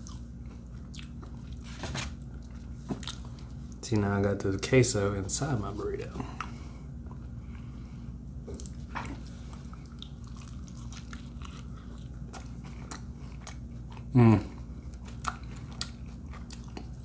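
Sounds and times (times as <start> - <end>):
person chewing food: 0.0 - 3.8, 6.1 - 17.0
person humming mm: 14.1 - 14.6.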